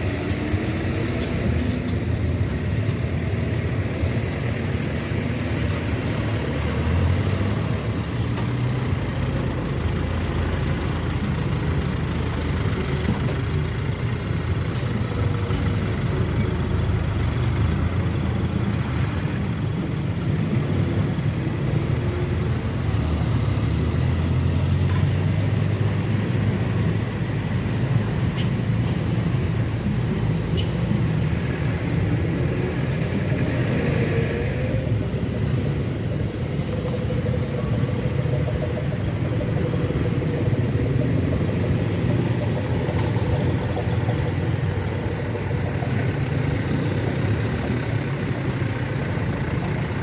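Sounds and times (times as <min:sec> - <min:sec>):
diesel truck engines rumbling: 0:00.0 - 0:50.0.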